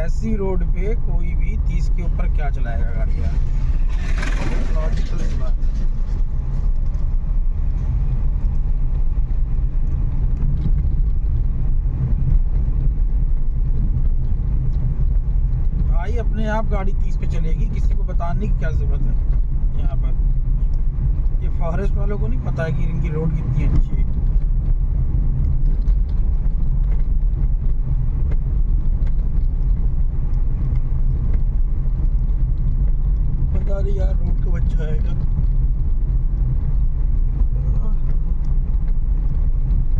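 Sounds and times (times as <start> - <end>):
engine and tyre rumble: 0.0 - 39.9
faint rattles and knocks: 1.7 - 39.9
knocks and rattles: 2.9 - 7.0.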